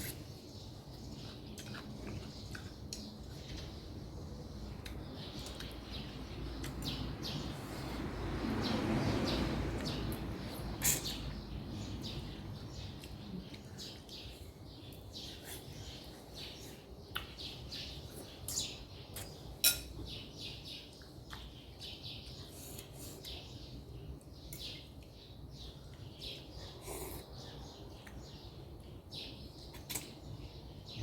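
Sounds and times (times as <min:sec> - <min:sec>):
chewing with wet mouth clicks: 0:00.9 - 0:03.6, 0:17.1 - 0:17.4, 0:20.9 - 0:21.8.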